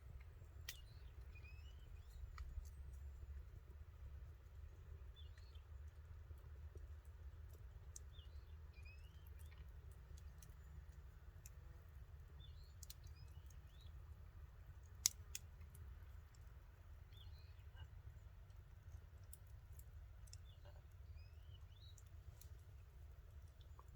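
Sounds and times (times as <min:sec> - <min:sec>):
campfire crackling and popping: 0:14.8 - 0:16.5.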